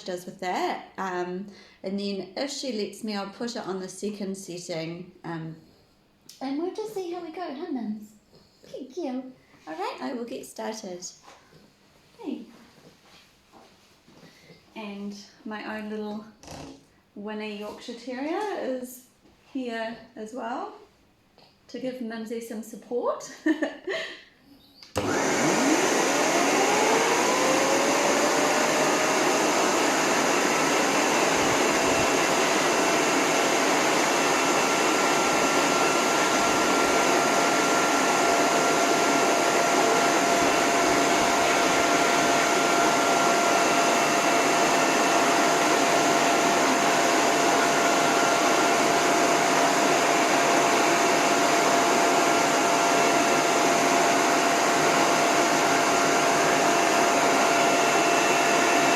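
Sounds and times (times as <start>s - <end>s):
hose dryer motor whine: 25.0s - 58.9s
rush of air from dryer: 25.0s - 58.9s.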